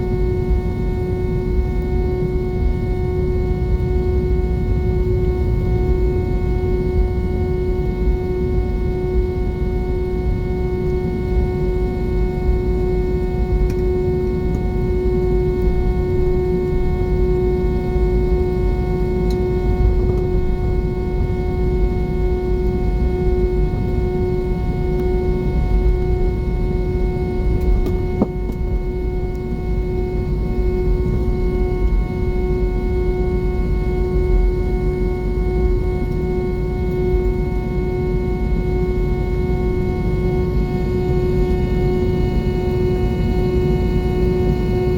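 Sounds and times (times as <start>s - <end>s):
jet cabin engine rumble and whine: 0.0s - 44.9s.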